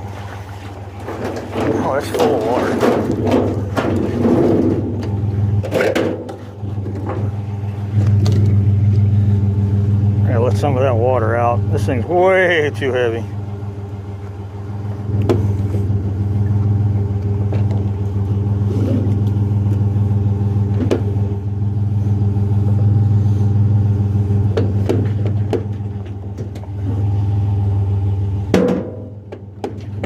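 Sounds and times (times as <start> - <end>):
truck engine idling: 0.0 - 30.0
knocks and clunks: 1.0 - 8.6, 24.5 - 27.0, 28.5 - 30.0.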